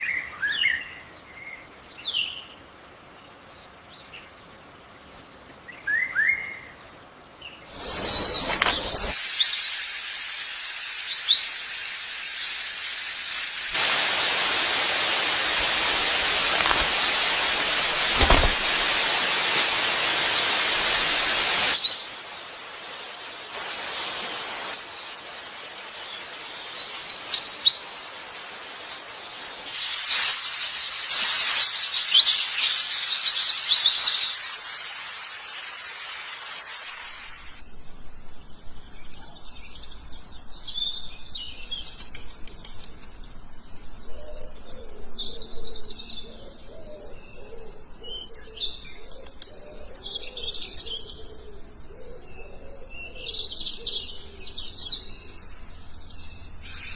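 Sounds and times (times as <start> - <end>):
birds chirping: 0.0 - 2.7, 3.3 - 9.2, 43.6 - 56.9
background hiss: 0.0 - 56.9
low bird calls: 5.3 - 6.8, 44.0 - 55.7.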